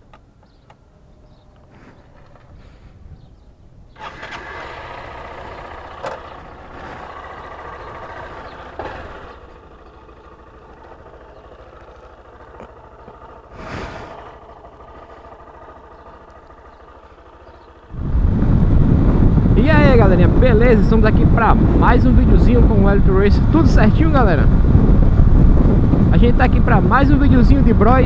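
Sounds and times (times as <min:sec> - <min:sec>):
motorcycle engine rumbling: 0:00.0 - 0:28.0.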